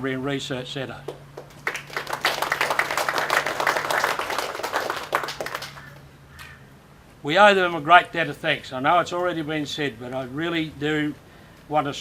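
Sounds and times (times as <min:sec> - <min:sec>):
audience applauding: 0:01.3 - 0:06.0.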